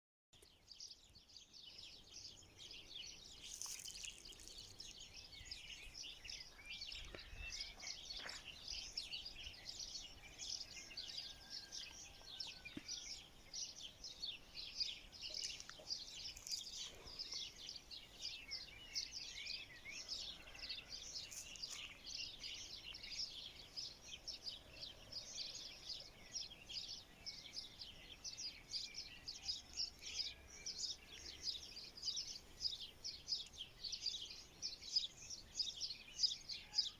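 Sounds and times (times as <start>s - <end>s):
small birds chirping: 0.4s - 36.9s.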